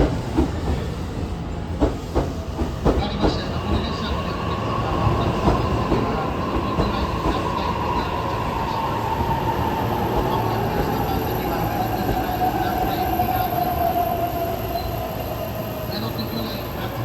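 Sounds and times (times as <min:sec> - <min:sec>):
train rolling noise: 0:00.0 - 0:17.0
high brake squeal: 0:10.4 - 0:17.0.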